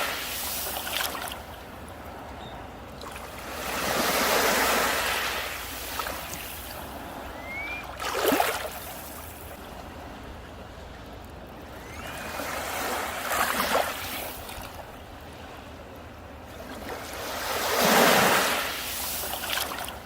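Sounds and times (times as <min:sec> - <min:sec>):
surf splash: 0:00.0 - 0:01.9, 0:03.0 - 0:10.0, 0:11.7 - 0:15.5, 0:16.6 - 0:20.0
sea waves washing onto beach: 0:00.0 - 0:10.2, 0:11.7 - 0:20.0
short rising whistle: 0:07.3 - 0:07.9, 0:11.8 - 0:12.5.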